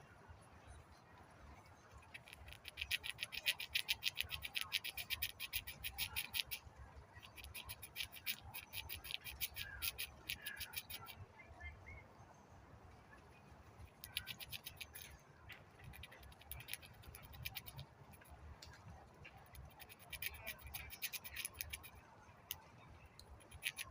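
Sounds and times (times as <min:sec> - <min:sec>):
squirrel gnawing nut shell: 0:02.0 - 0:06.6, 0:07.2 - 0:11.2, 0:13.9 - 0:23.9.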